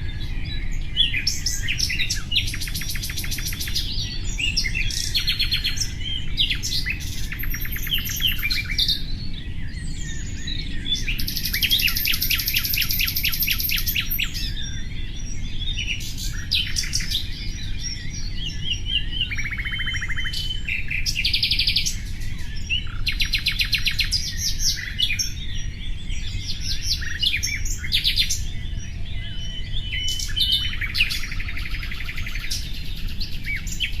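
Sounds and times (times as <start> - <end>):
nightingale singing: 0.0 - 34.0.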